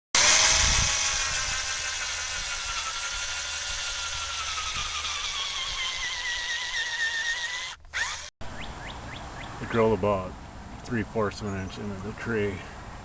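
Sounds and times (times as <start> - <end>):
electric drill boring into wood: 0.2 - 8.3.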